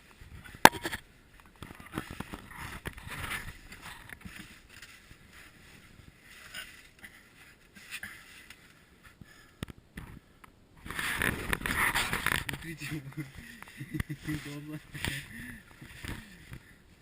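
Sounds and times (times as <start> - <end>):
clothing scraping against rock: 1.6 - 8.7, 10.8 - 16.8.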